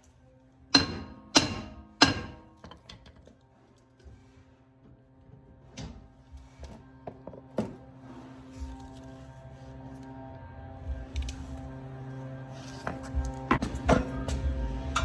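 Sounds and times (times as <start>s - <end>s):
hammer striking metal: 0.7s - 3.0s.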